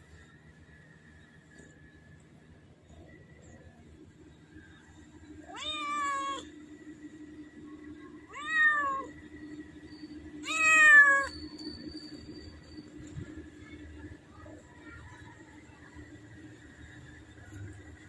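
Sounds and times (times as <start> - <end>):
cat meowing: 5.5 - 6.5, 8.3 - 9.1, 10.4 - 11.3.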